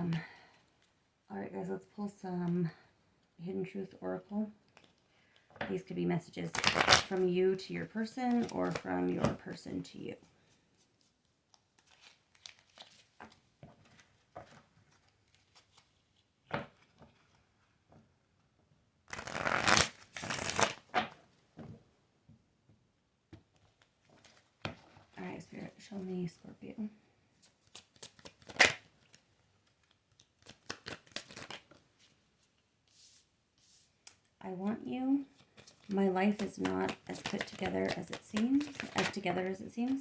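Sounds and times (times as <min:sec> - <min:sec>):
cards rustling: 0:04.6 - 0:05.5, 0:06.4 - 0:07.4, 0:08.0 - 0:09.5, 0:10.4 - 0:17.4, 0:19.1 - 0:21.2, 0:23.6 - 0:25.2, 0:27.4 - 0:34.3, 0:35.3 - 0:40.0
cards slapping: 0:06.5 - 0:07.2, 0:19.1 - 0:21.2, 0:27.4 - 0:32.2, 0:35.6 - 0:40.0.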